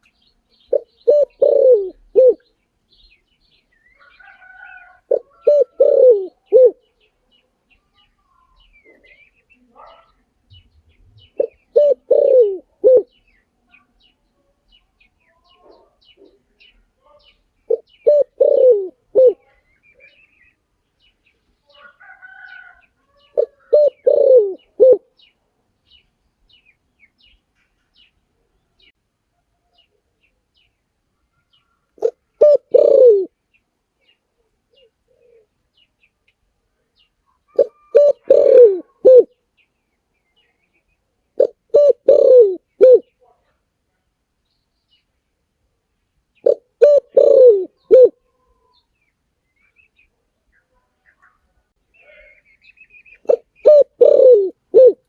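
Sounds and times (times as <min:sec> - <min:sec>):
small birds chirping: 0:00.0 - 0:55.0
dove cooing: 0:00.7 - 0:02.5, 0:04.3 - 0:06.9, 0:11.2 - 0:13.2, 0:17.7 - 0:19.6, 0:23.2 - 0:25.1, 0:32.0 - 0:33.3, 0:37.5 - 0:39.4, 0:41.4 - 0:43.1, 0:46.4 - 0:48.6, 0:53.2 - 0:55.0.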